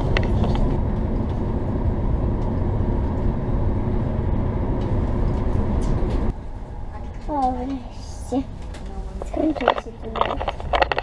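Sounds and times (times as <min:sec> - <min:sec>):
train rumbling through tunnel: 0:00.0 - 0:11.0.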